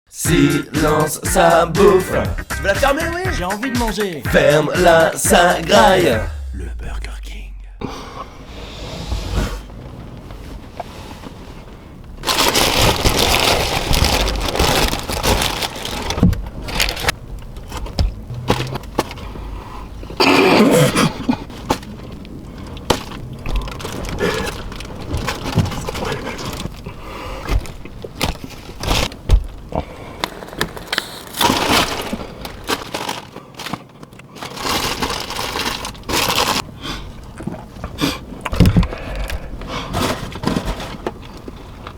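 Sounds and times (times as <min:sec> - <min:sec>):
paper wrappers rustling: 0:10.5 - 0:19.3, 0:21.2 - 0:36.7, 0:39.8 - 0:41.9.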